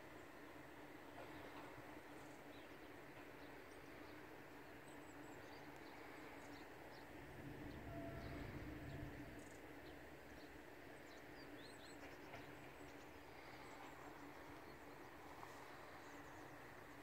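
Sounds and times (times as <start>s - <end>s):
faint high bird chirps: 7.7s - 9.4s.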